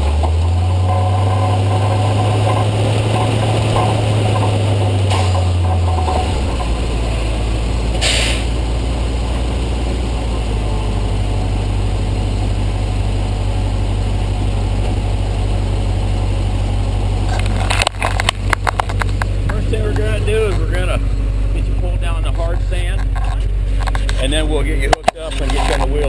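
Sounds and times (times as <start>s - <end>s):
truck engine droning: 0.0s - 26.0s
brief hiss: 8.0s - 8.5s.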